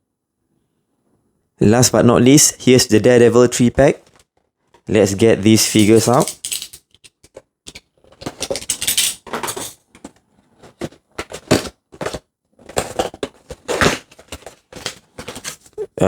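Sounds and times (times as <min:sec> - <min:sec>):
cardboard box rustling and rattling: 0:07.1 - 0:15.8.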